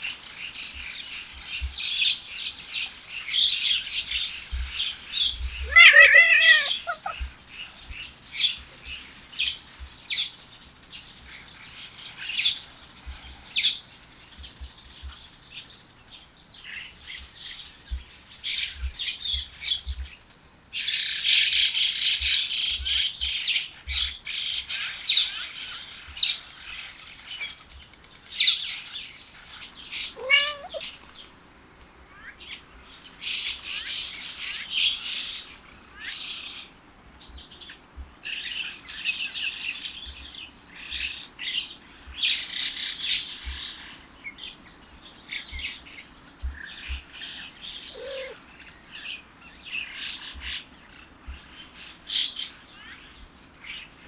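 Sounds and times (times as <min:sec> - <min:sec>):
small birds chirping: 0:00.0 - 0:54.0
cat meowing: 0:05.6 - 0:07.2, 0:30.1 - 0:30.9, 0:47.9 - 0:48.4.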